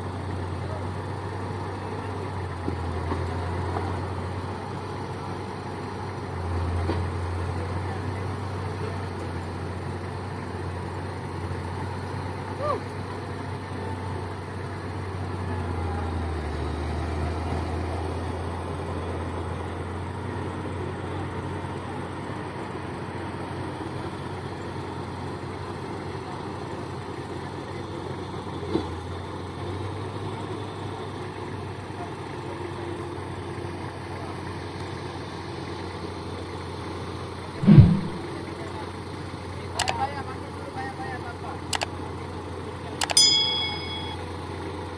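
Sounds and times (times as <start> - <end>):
heavy vehicle engine humming: 0.0 - 44.9
brief click: 43.0 - 43.2.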